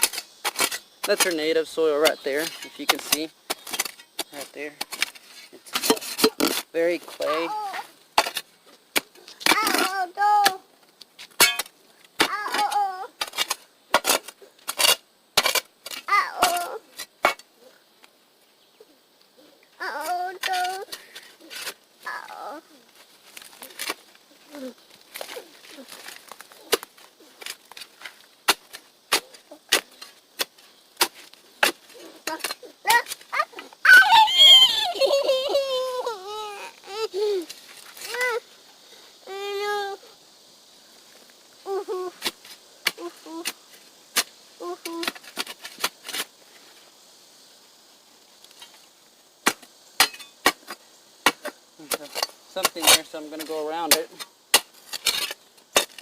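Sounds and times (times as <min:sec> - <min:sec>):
digging tool striking clay soil: 0:26.3 - 0:33.2.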